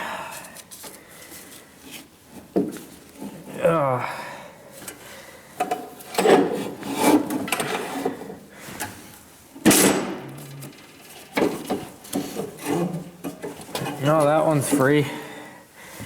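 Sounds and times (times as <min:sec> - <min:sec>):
tools knocking and clanking: 0:09.6 - 0:14.0.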